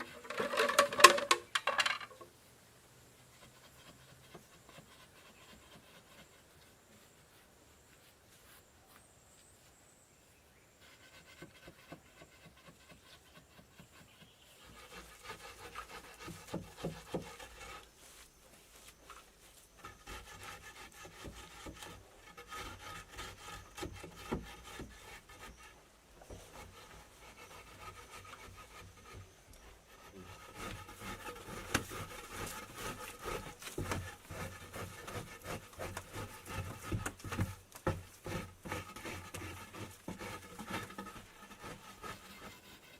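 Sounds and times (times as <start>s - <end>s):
hand tool strokes on wood: 10.7s - 42.9s.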